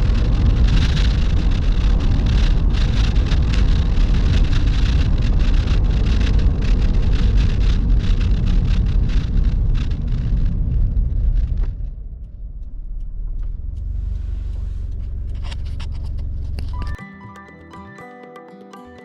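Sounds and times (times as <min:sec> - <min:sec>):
car engine rumbling and idling: 0:00.0 - 0:17.0
music: 0:16.7 - 0:19.0.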